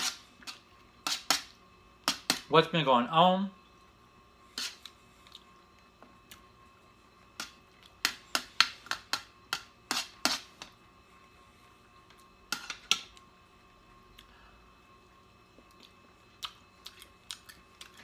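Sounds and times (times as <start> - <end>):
crunchy food being chewed: 15.5 - 18.0.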